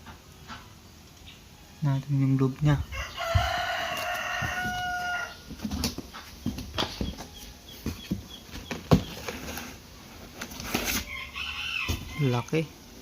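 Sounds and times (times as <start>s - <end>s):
rooster crowing: 2.8s - 5.6s, 10.9s - 12.7s
box being opened and handled: 4.0s - 11.1s.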